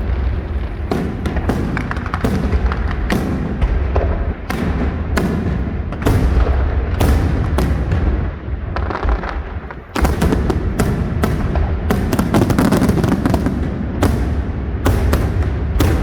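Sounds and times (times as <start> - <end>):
low rumble: 0.0 - 4.5
fireworks bangs and crackles: 0.0 - 16.0.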